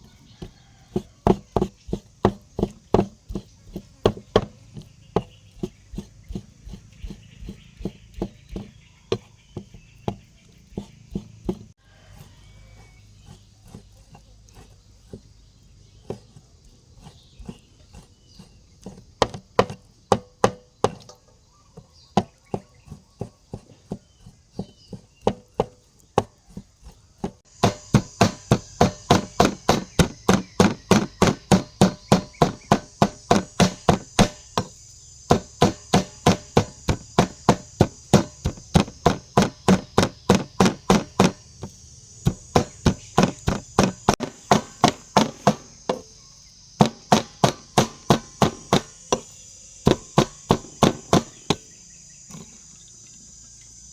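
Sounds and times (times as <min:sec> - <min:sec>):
knife chopping on cutting board: 0:18.4 - 0:21.0, 0:26.4 - 0:46.1, 0:46.8 - 0:49.3.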